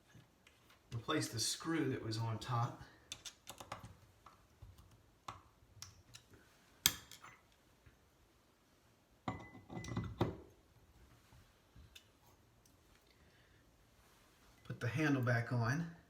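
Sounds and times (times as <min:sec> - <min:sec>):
metal tools clinking and knocking: 0:09.3 - 0:10.2.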